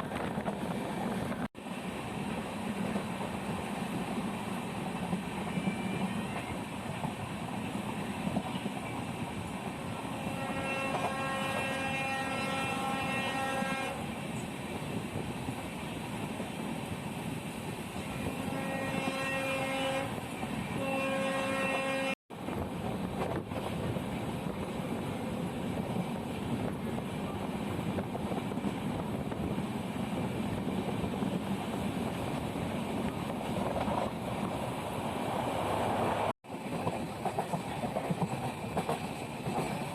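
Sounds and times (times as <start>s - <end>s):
train wheels rumbling on track: 0.0s - 39.9s
train horn blast: 10.0s - 14.1s, 18.1s - 22.2s.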